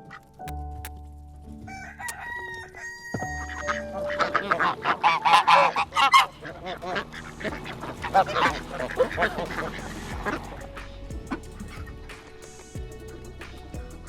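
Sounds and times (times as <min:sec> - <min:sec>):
soft music tones: 0:00.0 - 0:14.0
ducks quacking: 0:03.5 - 0:10.7.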